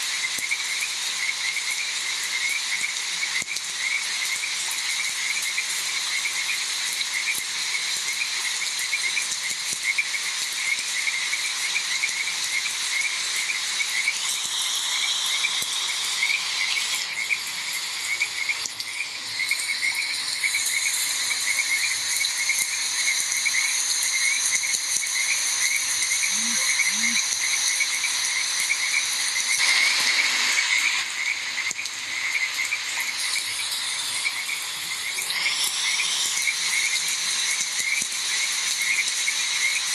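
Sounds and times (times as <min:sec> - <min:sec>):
rain hiss: 0:00.0 - 0:39.9
frogs croaking: 0:00.1 - 0:39.9
high insect trills: 0:09.8 - 0:39.9.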